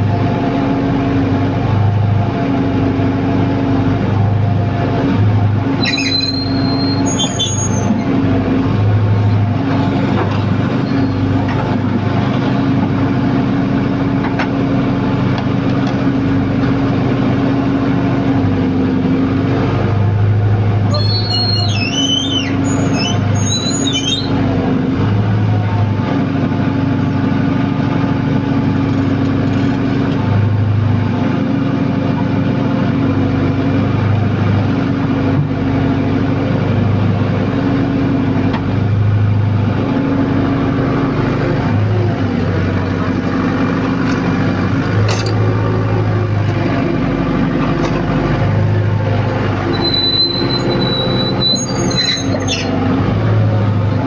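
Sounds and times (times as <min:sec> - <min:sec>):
pile-driving rig humming: 0:00.0 - 0:54.0
high squeals: 0:05.8 - 0:08.2, 0:10.7 - 0:11.4, 0:20.9 - 0:24.4, 0:49.4 - 0:53.8.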